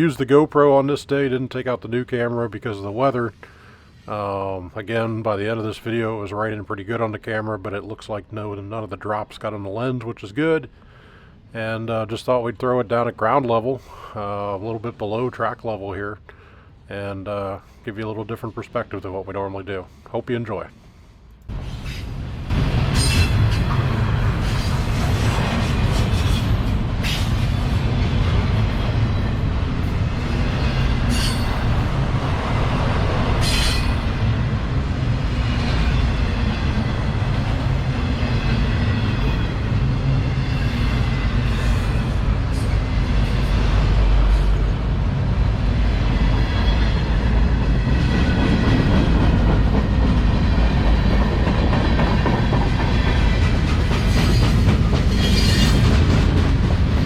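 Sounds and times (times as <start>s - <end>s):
train wheels rumbling on track: 21.4s - 57.0s.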